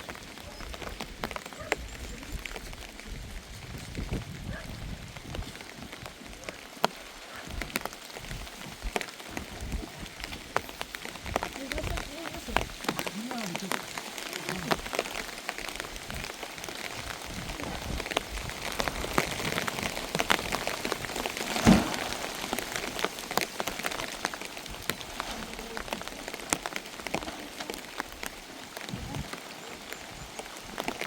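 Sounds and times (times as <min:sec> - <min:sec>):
rain drops ticking: 0:00.0 - 0:31.0
loud thump: 0:21.5 - 0:22.2.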